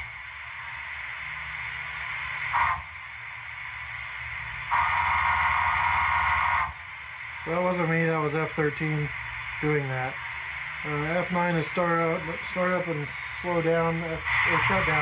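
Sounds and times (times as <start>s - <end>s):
locomotive background sounds: 0.0s - 15.0s
model train whistle blasts: 2.4s - 3.0s, 4.7s - 6.8s.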